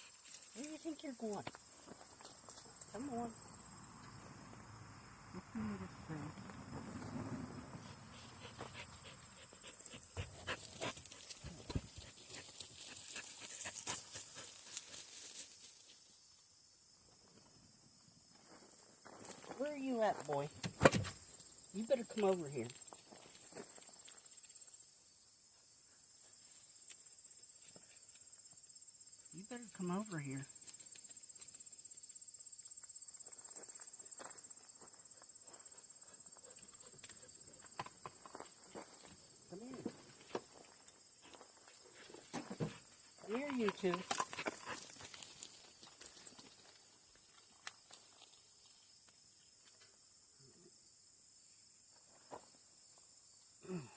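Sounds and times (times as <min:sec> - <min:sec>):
insects chirping: 0:00.0 - 0:53.9
dog panting: 0:07.9 - 0:15.0
rustling in ground cover: 0:07.9 - 0:16.0.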